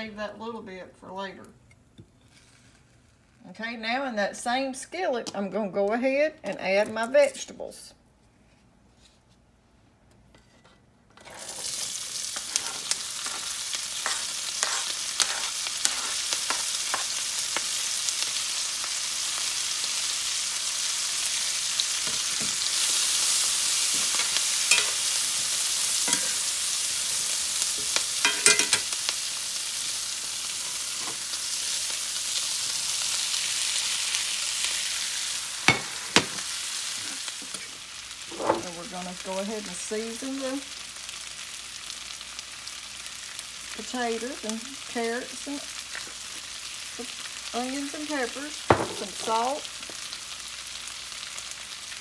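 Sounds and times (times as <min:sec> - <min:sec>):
vegetables sizzling in a skillet: 0:11.2 - 0:52.0
spoon scraping iron pan: 0:12.4 - 0:17.2, 0:23.9 - 0:25.2, 0:26.0 - 0:26.5, 0:27.8 - 0:28.9.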